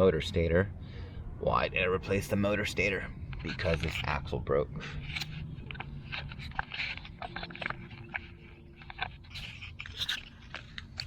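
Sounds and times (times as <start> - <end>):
light scrapes clicks and crunches: 2.2 - 11.0.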